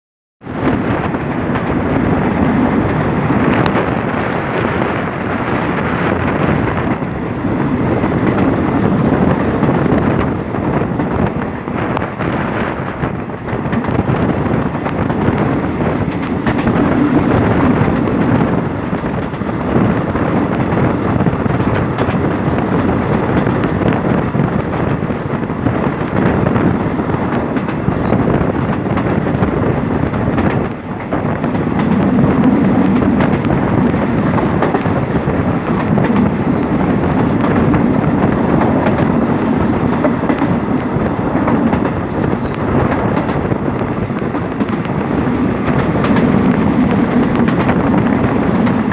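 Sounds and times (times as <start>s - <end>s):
train wheels rushing on track: 0.4s - 48.9s
wind buffeting microphone: 0.4s - 48.9s
light rail clicks: 13.3s - 19.5s, 21.5s - 24.0s, 27.3s - 29.3s, 39.9s - 45.0s.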